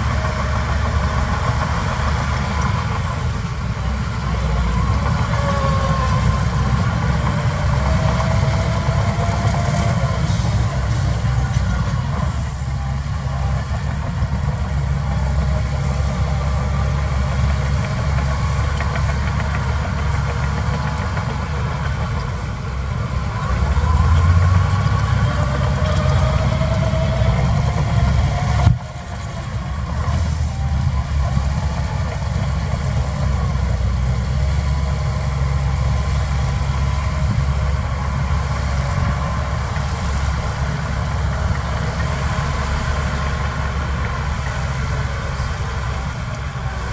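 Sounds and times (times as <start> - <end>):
heavy diesel machinery engine: 0.0 - 46.9
rising engine whine: 0.0 - 46.9.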